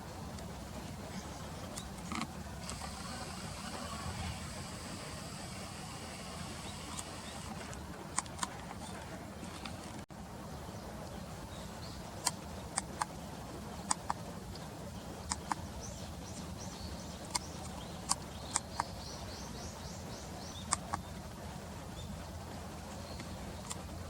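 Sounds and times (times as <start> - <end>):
low outdoor rumble: 0.0 - 24.0
sharp clicks: 1.7 - 8.9, 15.3 - 15.6, 17.3 - 19.0, 20.7 - 21.0.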